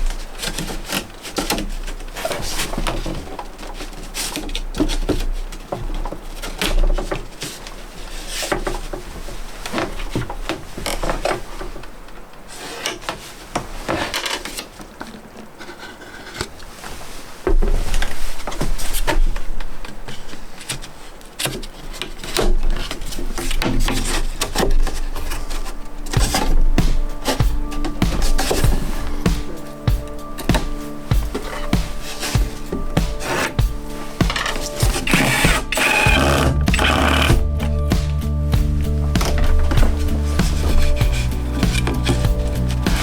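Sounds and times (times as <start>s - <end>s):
wood scraping: 0.0s - 43.0s
wooden knocks and clatter: 0.0s - 43.0s
wooden knocks and taps: 22.2s - 43.0s.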